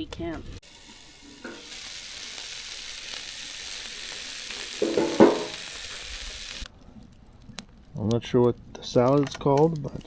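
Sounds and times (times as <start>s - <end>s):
sausages sizzling on a grill: 0.0s - 6.7s.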